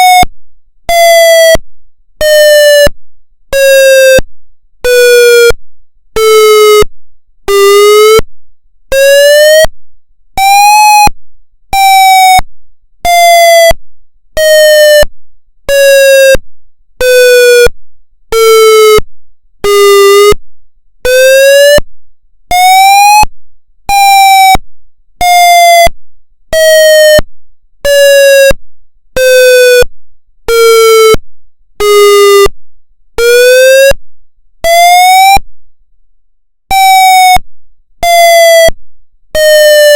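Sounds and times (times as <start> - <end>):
pulsing electronic siren wail: 0.0 - 0.3, 8.9 - 9.7, 10.4 - 11.1, 11.8 - 12.4, 14.4 - 15.1, 19.7 - 20.4, 21.1 - 21.8, 22.5 - 23.3, 23.9 - 24.6, 31.9 - 32.5, 33.2 - 34.0, 34.6 - 35.4, 36.7 - 37.4, 38.0 - 38.8, 39.4 - 39.9.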